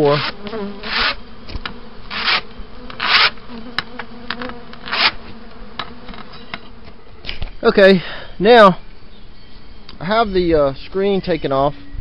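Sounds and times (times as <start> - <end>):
scraping hive floor: 0.0 - 7.6
honeybees buzzing: 0.0 - 12.0.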